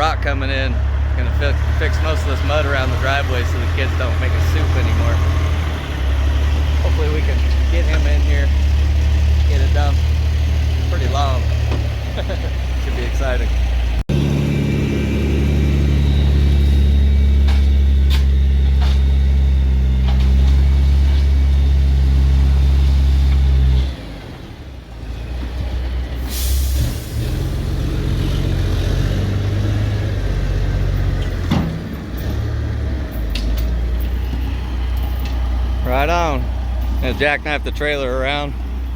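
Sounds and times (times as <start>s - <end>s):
truck engine running: 0.0s - 38.9s
air hiss: 26.2s - 27.3s.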